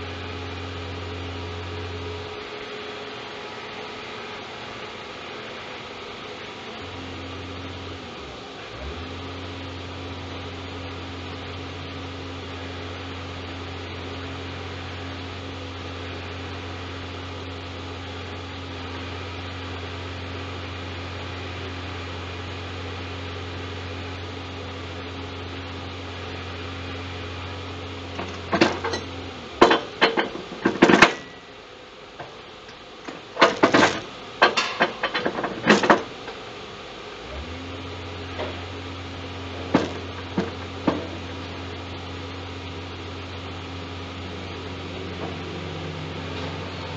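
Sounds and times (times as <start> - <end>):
low hydraulic machine hum: 0.0 - 46.9
sharp metallic knocks and clatters: 28.2 - 31.4, 33.0 - 36.1, 39.6 - 41.2.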